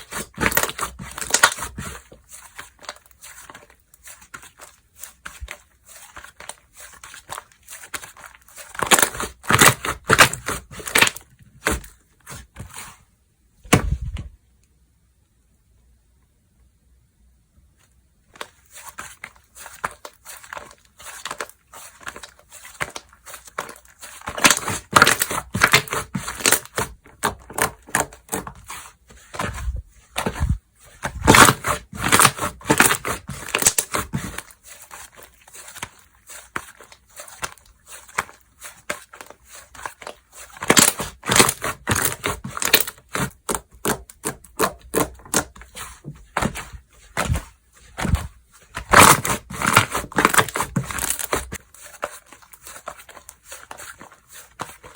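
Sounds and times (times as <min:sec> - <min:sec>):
slime crackling and popping: 0:31.1 - 0:35.1, 0:36.6 - 0:45.5, 0:46.4 - 0:51.6.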